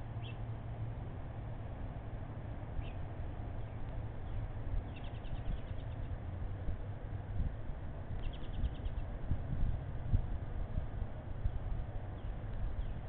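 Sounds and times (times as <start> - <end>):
low hum: 0.0 - 13.0
bird chirps and trill: 0.2 - 0.4, 2.8 - 3.0, 4.2 - 6.1, 8.2 - 9.1.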